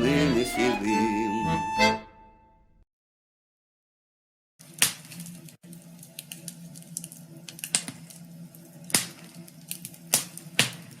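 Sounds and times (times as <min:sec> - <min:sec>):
crackling pops and snaps: 0:04.7 - 0:05.6, 0:06.2 - 0:08.2, 0:08.9 - 0:11.0.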